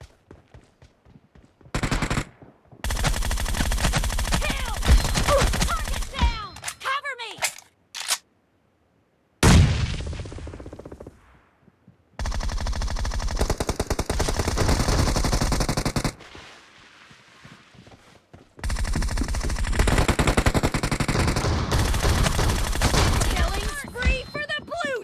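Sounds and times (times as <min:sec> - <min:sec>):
video game automatic gunfire: 0:01.7 - 0:06.2, 0:12.2 - 0:16.1, 0:18.6 - 0:24.4.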